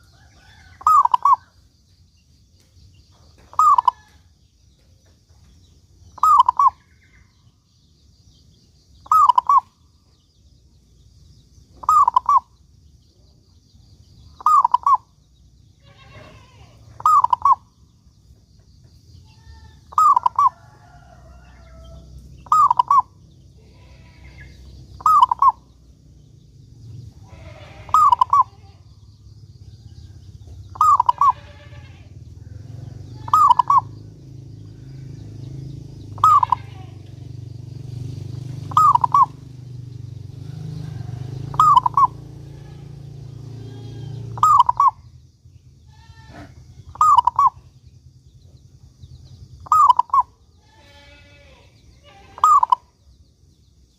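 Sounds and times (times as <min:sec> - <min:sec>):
dove cooing: 0:00.0 - 0:01.5, 0:03.5 - 0:04.1, 0:06.2 - 0:06.8, 0:09.0 - 0:09.7, 0:11.8 - 0:12.5, 0:14.4 - 0:15.1, 0:16.2 - 0:17.7, 0:19.4 - 0:23.2, 0:24.9 - 0:25.7, 0:27.4 - 0:28.6, 0:30.7 - 0:32.0, 0:32.6 - 0:36.9, 0:38.4 - 0:39.4, 0:40.4 - 0:45.0, 0:46.3 - 0:47.6, 0:49.6 - 0:50.3, 0:52.4 - 0:52.9
low steady rumble: 0:00.0 - 0:53.9.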